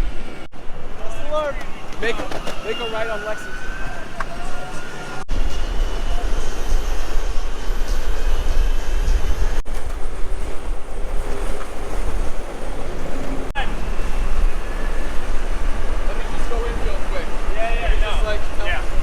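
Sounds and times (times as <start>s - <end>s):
city street traffic: 0.0s - 19.0s
wind rumble on microphone: 5.3s - 19.0s.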